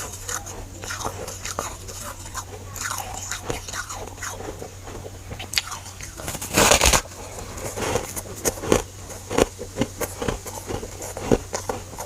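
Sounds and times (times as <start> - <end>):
person biting and crunching frost: 0.0 - 12.0.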